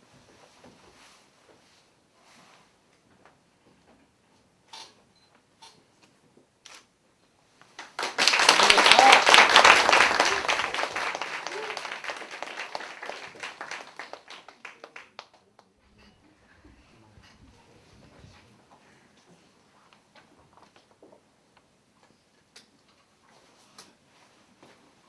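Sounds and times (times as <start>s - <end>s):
crowd clapping: 7.8s - 15.8s.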